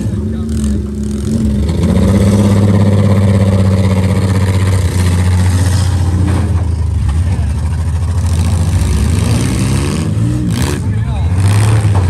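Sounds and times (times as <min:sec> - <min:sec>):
car engines running loud: 0:00.0 - 0:12.0.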